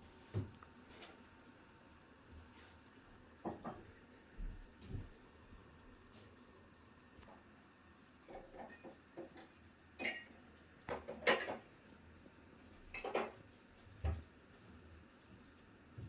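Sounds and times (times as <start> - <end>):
dishes and cutlery clinking: 8.3 - 11.7, 12.9 - 13.4.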